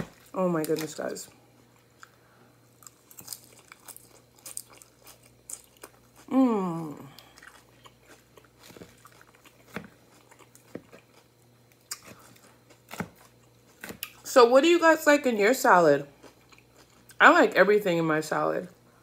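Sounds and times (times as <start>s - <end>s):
crisp chewing crunches: 2.0s - 14.3s
short hummed vocal sound: 6.2s - 7.4s.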